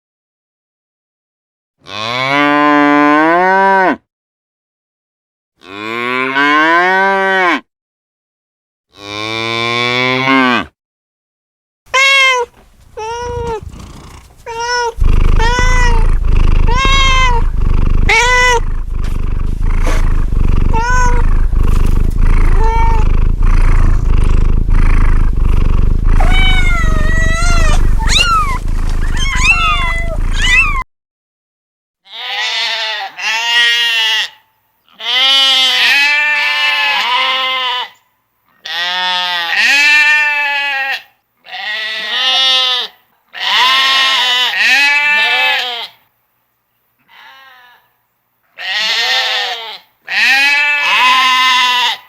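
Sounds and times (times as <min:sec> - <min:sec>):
cat meowing: 0:11.9 - 0:30.8
short arched animal calls: 0:12.0 - 0:30.8
cow mooing: 0:13.2 - 0:30.8.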